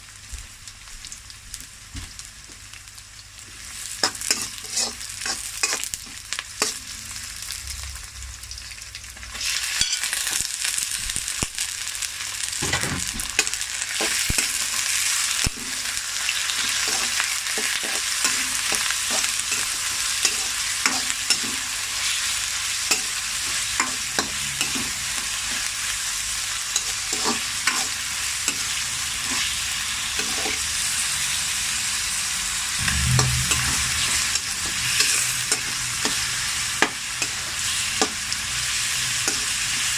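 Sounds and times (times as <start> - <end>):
food sizzling in a frying pan: 0.0 - 39.9
utensil scraping a pan: 4.3 - 5.8.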